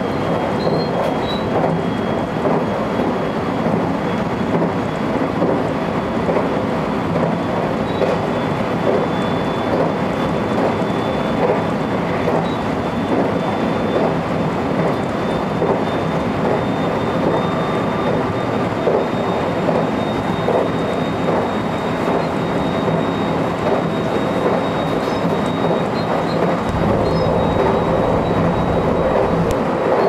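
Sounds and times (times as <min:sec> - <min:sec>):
rumble of wheels on rail: 0:00.0 - 0:30.0
faint high whine: 0:26.6 - 0:29.7.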